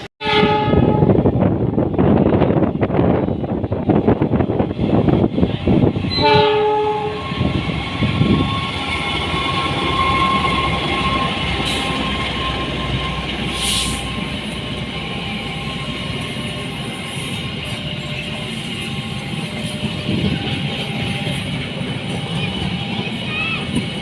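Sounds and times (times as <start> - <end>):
train horn: 0.0 - 1.2, 6.1 - 14.2
train passing rumble: 0.0 - 24.0.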